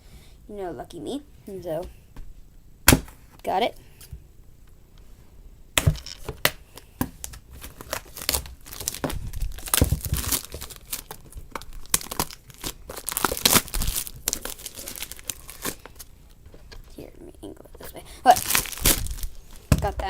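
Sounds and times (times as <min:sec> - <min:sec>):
shrink wrap tearing and crinkling: 0:07.2 - 0:16.4, 0:18.3 - 0:20.0.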